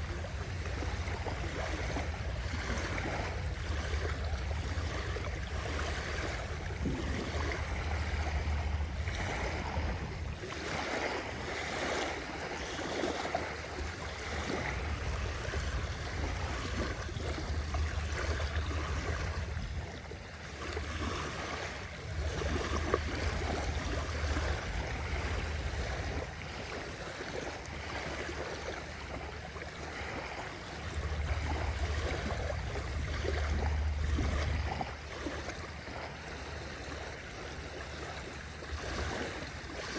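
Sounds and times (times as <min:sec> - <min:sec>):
low rumble: 0:00.0 - 0:10.8, 0:30.2 - 0:35.6
sea waves lapping: 0:00.0 - 0:39.9.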